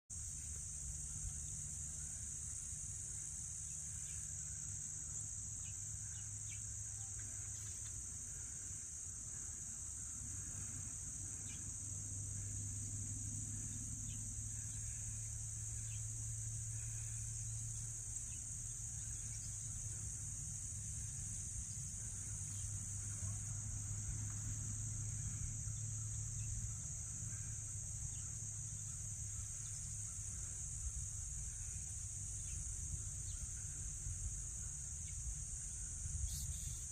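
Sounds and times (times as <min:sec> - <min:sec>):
crickets chirping chorus: 0:00.1 - 0:36.9
low steady rumble: 0:08.0 - 0:36.9.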